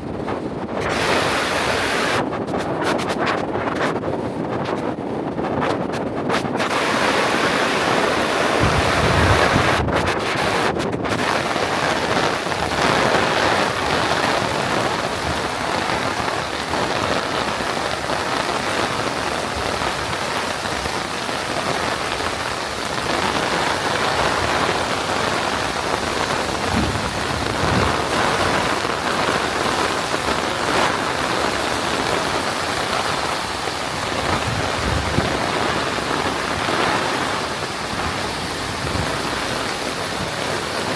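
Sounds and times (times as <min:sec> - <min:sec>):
heavy rain splashing: 0:00.8 - 0:02.3, 0:06.4 - 0:40.9
low bumps: 0:08.6 - 0:10.1, 0:26.4 - 0:28.2.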